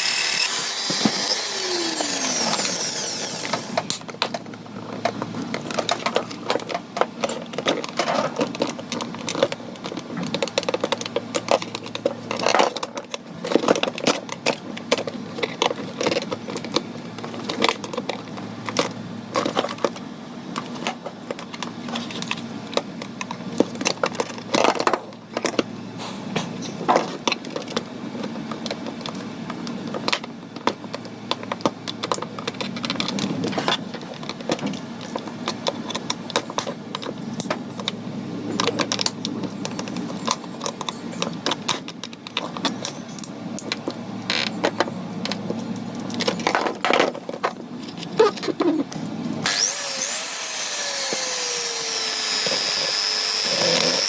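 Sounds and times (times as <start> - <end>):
electric screwdriver winding down: 0.0 - 3.9, 49.4 - 54.0.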